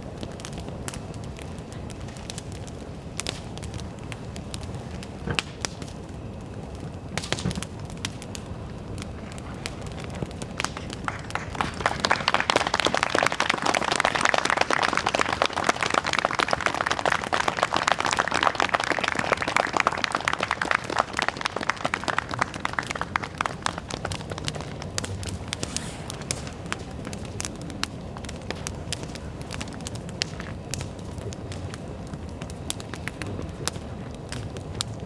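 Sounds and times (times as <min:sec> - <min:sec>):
bonfire crackling: 0:00.0 - 0:35.0
audience applause: 0:10.6 - 0:27.2.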